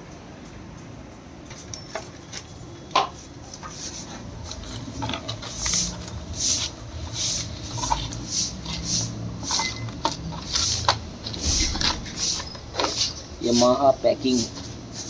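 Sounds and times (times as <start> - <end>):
scraping strokes: 3.6 - 15.0.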